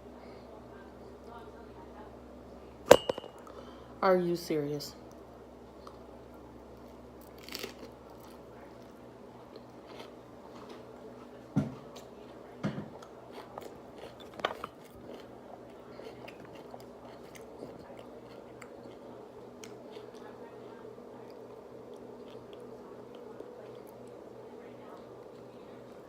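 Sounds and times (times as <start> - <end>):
person chewing food: 5.1 - 10.9, 11.9 - 20.6, 21.2 - 26.0.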